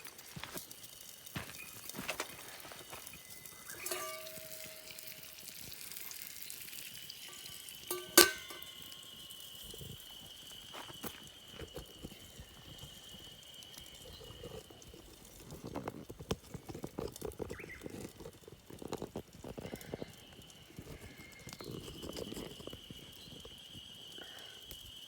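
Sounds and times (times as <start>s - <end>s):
small clicks and rustles: 0.0s - 25.0s
faint steady high tone: 2.8s - 5.6s
metal cookware clinking: 3.2s - 9.6s.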